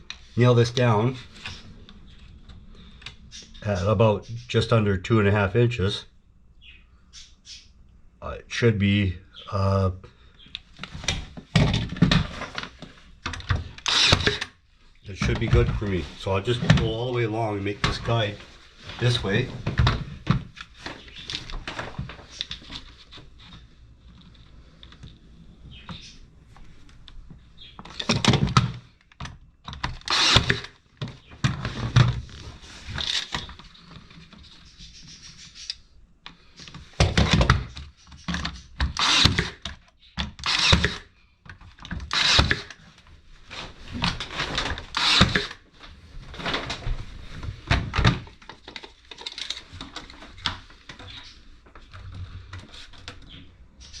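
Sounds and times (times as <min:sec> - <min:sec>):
wooden knocks and scraping: 0:15.1 - 0:23.6.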